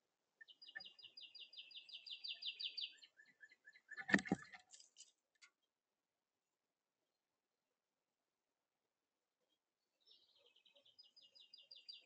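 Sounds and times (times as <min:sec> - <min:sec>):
bird chirps: 0:00.4 - 0:05.1, 0:09.9 - 0:12.0.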